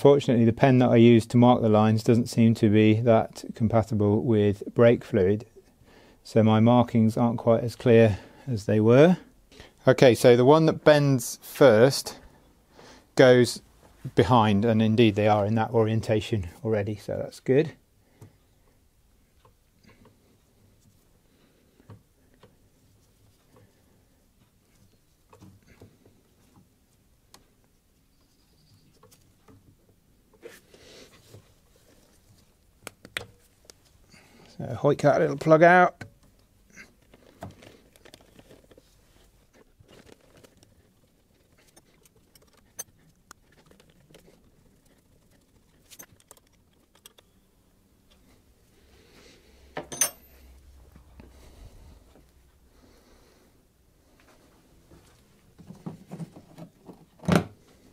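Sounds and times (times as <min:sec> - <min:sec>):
hands handling metal tools: 0:39.5 - 0:47.3, 0:49.8 - 0:50.5
sharp metallic clink: 0:49.9 - 0:50.4.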